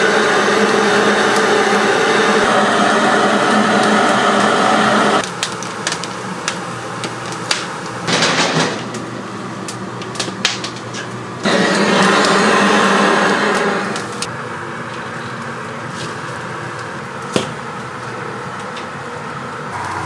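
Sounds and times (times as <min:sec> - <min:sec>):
motor-driven machine humming: 0:00.0 - 0:05.2, 0:19.7 - 0:20.0.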